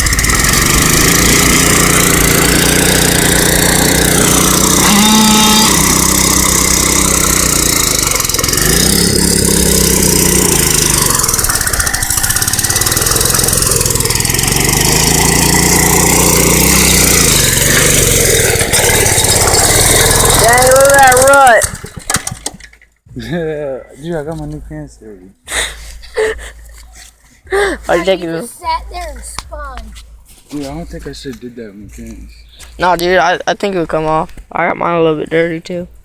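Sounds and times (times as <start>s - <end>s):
small engine revving: 0.0s - 22.8s.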